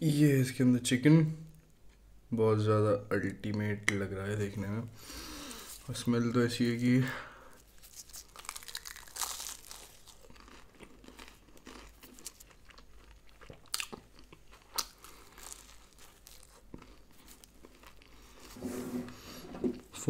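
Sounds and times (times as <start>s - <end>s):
pastry crunching while chewing: 7.7s - 18.5s.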